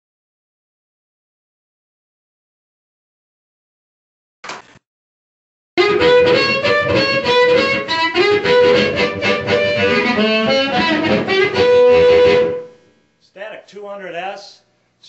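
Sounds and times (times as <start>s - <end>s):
harmonica playing: 5.8s - 12.9s.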